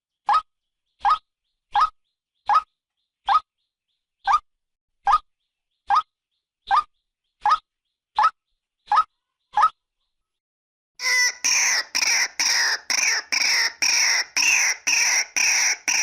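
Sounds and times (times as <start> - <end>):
waterhen calling: 11.0 - 16.0.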